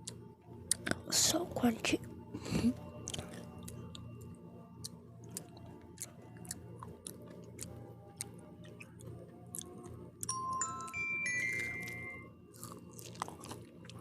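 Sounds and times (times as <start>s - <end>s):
chewing crunchy pizza: 0.0s - 10.3s, 11.5s - 14.0s
low steady hum: 0.0s - 14.0s.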